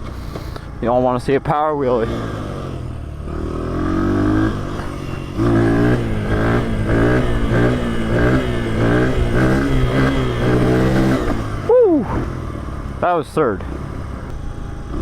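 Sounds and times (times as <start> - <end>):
motorcycle engine revving hard: 1.7 - 15.0.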